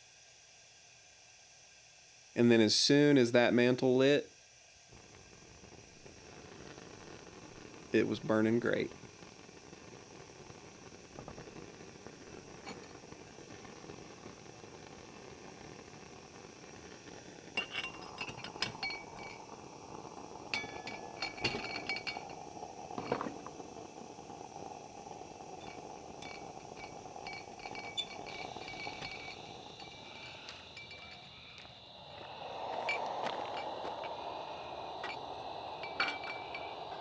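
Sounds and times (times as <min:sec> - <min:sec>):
steady hiss: 0:00.0 - 0:37.0
glassy clinks and chimes: 0:11.2 - 0:14.1, 0:16.8 - 0:31.7, 0:32.8 - 0:37.0.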